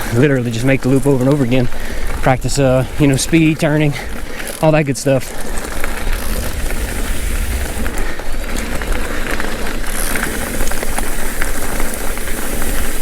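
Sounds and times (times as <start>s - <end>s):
bike rattling: 0.0s - 13.0s
tyres rolling on dirt: 0.0s - 13.0s
wind buffeting microphone: 5.5s - 13.0s.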